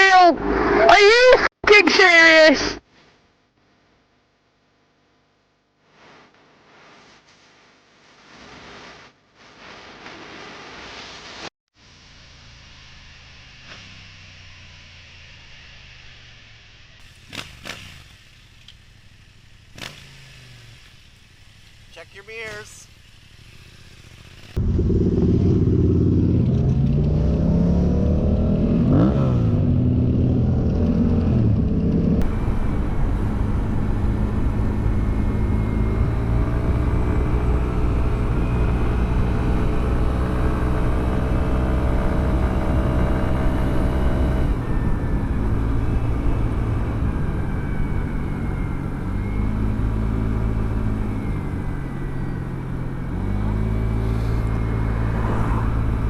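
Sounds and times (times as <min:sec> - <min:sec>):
wind and road noise: 0:00.0 - 0:02.8, 0:12.2 - 0:56.0
motorcycle engine running: 0:11.8 - 0:56.0.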